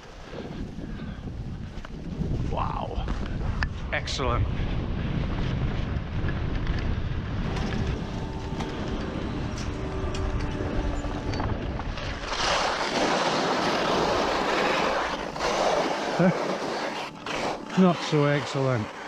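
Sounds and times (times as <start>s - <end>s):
wind buffeting microphone: 0.0s - 17.7s
skis sliding over snow: 7.4s - 19.0s.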